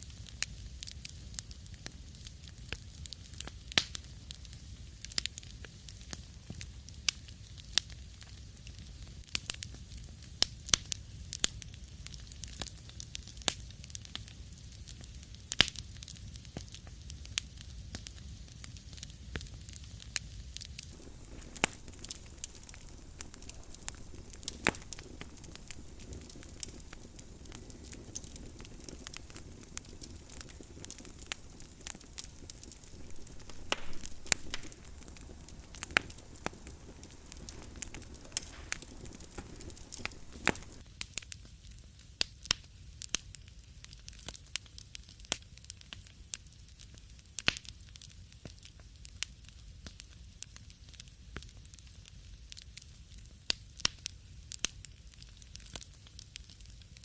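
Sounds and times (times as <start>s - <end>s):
wood fire crackling and popping: 0.0s - 41.4s, 46.9s - 57.0s
fire low rumble: 20.9s - 40.8s.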